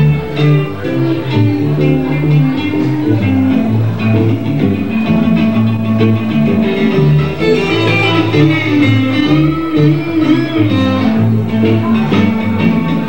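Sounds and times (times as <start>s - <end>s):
electric guitar lead: 0.0s - 13.0s
steady bass line: 0.0s - 13.0s.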